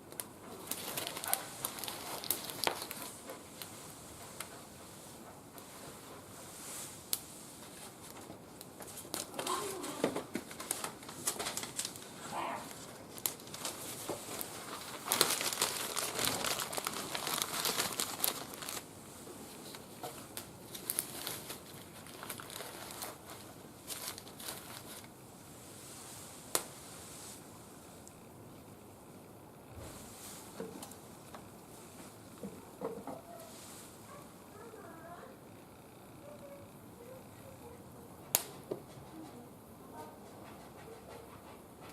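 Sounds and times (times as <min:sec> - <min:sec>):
wood fire crackling: 0:00.0 - 0:25.2, 0:26.4 - 0:28.8, 0:38.3 - 0:38.7.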